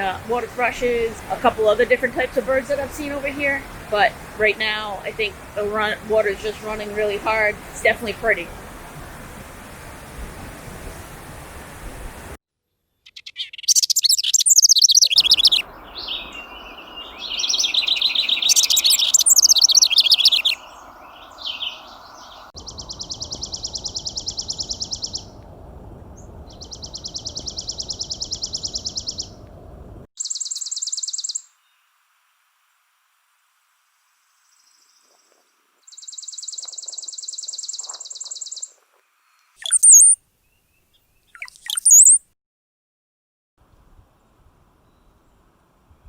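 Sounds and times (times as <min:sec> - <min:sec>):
songbirds singing: 0:00.0 - 0:08.5, 0:13.0 - 0:25.4, 0:26.1 - 0:29.4, 0:30.2 - 0:31.8, 0:34.4 - 0:42.2
steady rushing hiss: 0:00.0 - 0:12.4
dry rapid bird trills: 0:13.0 - 0:25.3, 0:26.2 - 0:29.4, 0:30.2 - 0:31.6, 0:35.0 - 0:38.8, 0:39.4 - 0:40.6, 0:41.2 - 0:42.2.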